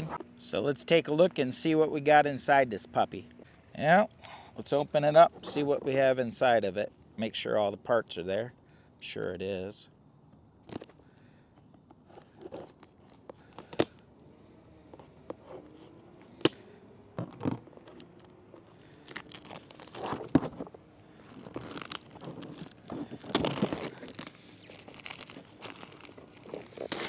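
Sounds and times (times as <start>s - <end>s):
packaging crinkling and tearing: 12.1s - 14.0s, 17.3s - 27.0s.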